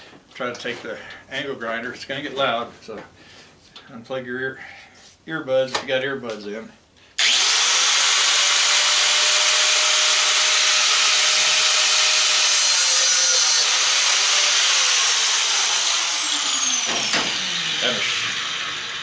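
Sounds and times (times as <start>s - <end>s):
angle grinder cutting metal: 7.2s - 19.0s.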